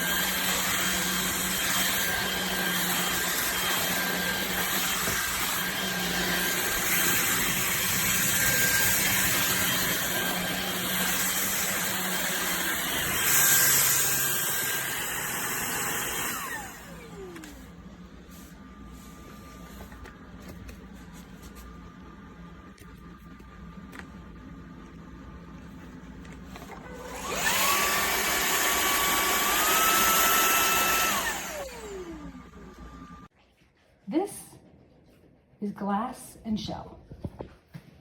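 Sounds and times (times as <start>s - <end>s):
stick vacuum motor whine: 0.0s - 18.0s, 26.2s - 33.3s.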